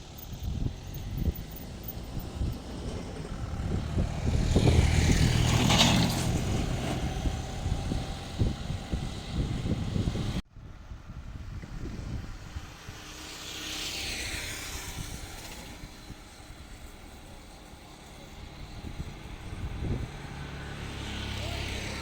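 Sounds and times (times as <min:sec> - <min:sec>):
vehicle passing: 0:00.0 - 0:10.4, 0:19.2 - 0:22.0.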